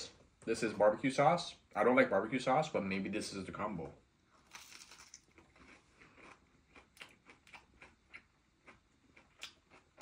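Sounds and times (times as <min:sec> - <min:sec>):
chewing crunchy fried food: 0:04.4 - 0:10.0.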